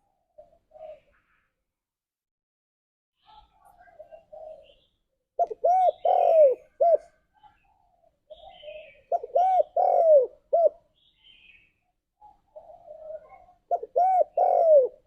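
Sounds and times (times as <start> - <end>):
dove cooing: 0.1 - 1.2, 3.5 - 4.8, 5.4 - 10.8, 12.2 - 15.0.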